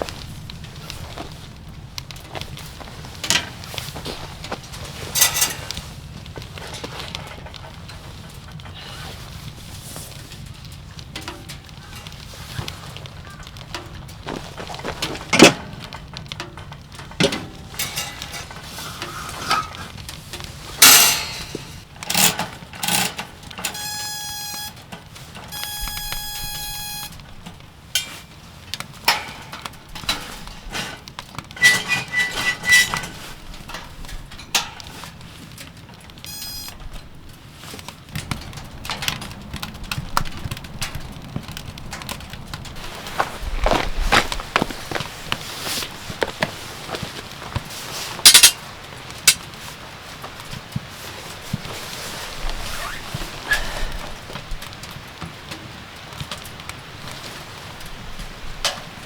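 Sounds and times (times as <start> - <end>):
short buzzing tones: 23.7 - 24.8, 25.5 - 27.2, 36.3 - 36.8
irregular knocks and clatter: 38.1 - 49.7.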